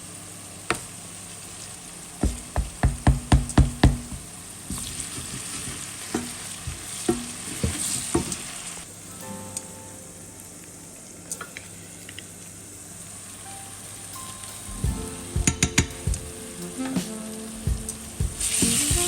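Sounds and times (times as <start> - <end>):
food sizzling: 0.4 - 19.0
spoon knocking against pot: 2.2 - 4.3.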